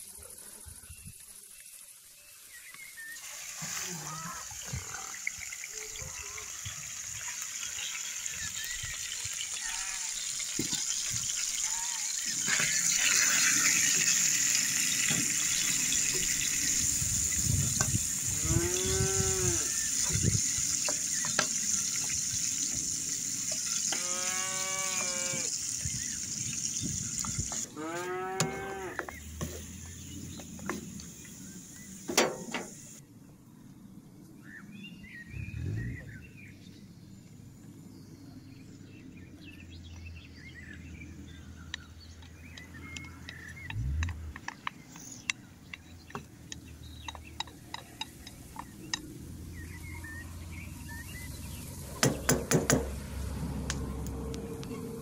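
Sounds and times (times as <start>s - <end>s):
meat sizzling in a pan: 4.5s - 32.9s
cow mooing: 18.4s - 19.7s, 24.0s - 25.5s, 27.7s - 29.1s.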